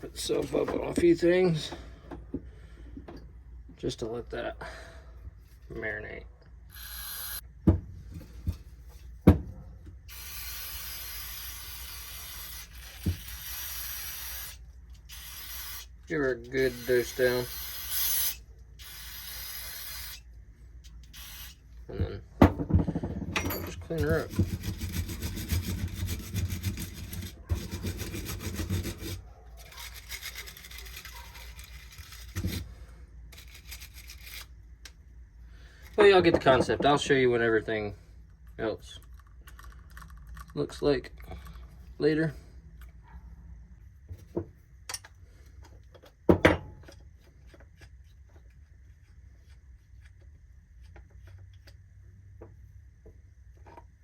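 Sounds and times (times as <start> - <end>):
aerosol can spraying: 10.2 - 15.9, 16.7 - 20.2
scrubbing metal part: 23.4 - 32.7.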